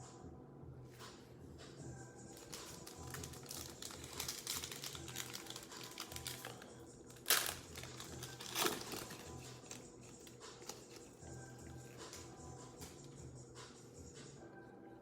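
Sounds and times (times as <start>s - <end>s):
faint background music: 0.0s - 15.0s
plastic wrappers crinkling and tearing: 2.3s - 11.2s.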